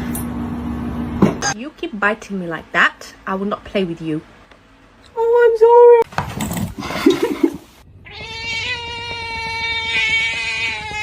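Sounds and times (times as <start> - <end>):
cat yowling: 8.0 - 11.0.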